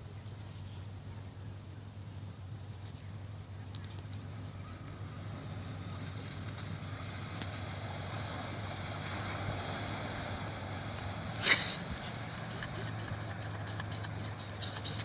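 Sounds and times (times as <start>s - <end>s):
car engine running at low revs: 0.0s - 15.0s
vehicle driving through stream: 0.0s - 15.0s.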